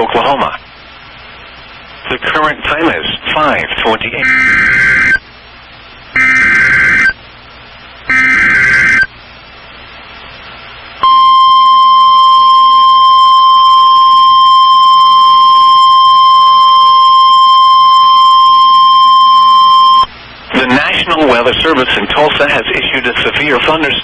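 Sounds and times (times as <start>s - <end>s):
steady alarm tone: 4.2s - 5.2s, 6.2s - 7.2s, 8.1s - 9.1s, 11.0s - 20.1s
warbling data tones: 4.2s - 5.2s, 6.2s - 7.2s, 8.1s - 9.1s.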